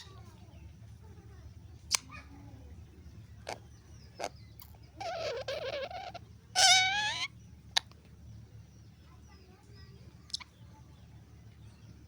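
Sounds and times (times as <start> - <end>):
parrot calling: 5.0 - 7.4.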